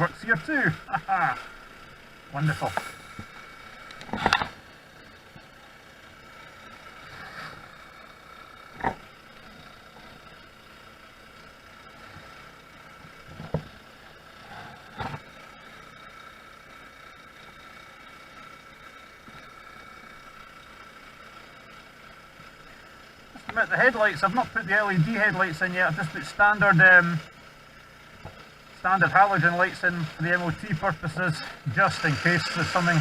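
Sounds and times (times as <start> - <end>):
road noise: 0.0 - 33.0
scooter engine running: 0.0 - 33.0.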